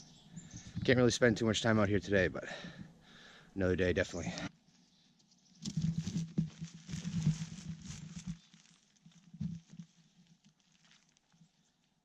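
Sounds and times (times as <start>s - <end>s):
rustling and crunching handling: 5.2s - 12.0s.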